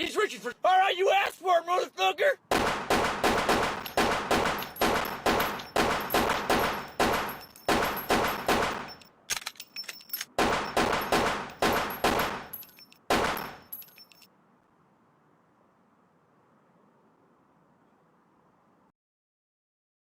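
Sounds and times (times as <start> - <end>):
gunshots with echo: 2.5 - 9.0, 10.4 - 13.7
small metallic clicks: 8.8 - 10.4, 11.5 - 14.3.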